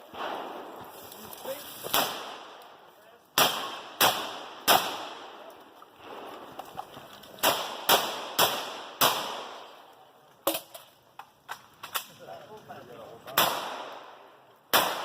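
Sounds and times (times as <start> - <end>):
shotgun shots with echo: 0.1 - 0.7, 1.9 - 2.6, 3.4 - 5.4, 7.4 - 9.7, 13.4 - 15.0.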